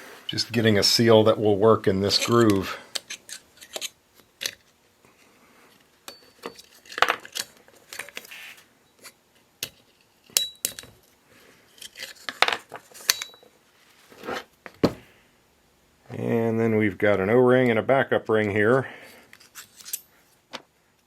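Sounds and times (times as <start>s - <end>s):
metal tools clinking and scraping: 2.1s - 4.6s, 6.1s - 8.2s, 11.7s - 13.6s, 19.1s - 20.2s.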